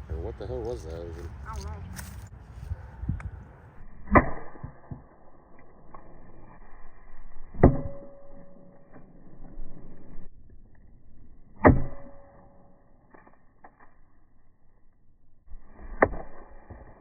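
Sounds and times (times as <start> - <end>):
axe striking metal toy cars: 11.6 - 12.7.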